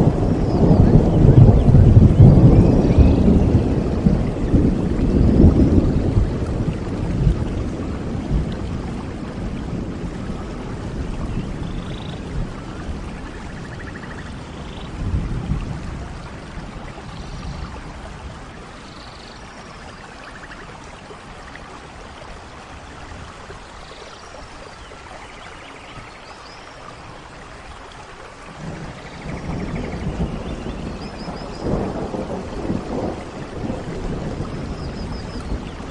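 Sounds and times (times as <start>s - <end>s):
low thunder rumbles: 0.0s - 21.3s, 28.5s - 35.9s
steady rain falling: 0.0s - 35.9s.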